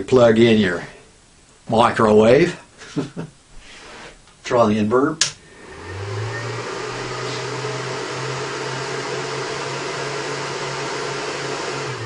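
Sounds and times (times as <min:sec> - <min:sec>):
microwave oven humming: 0:05.5 - 0:12.0.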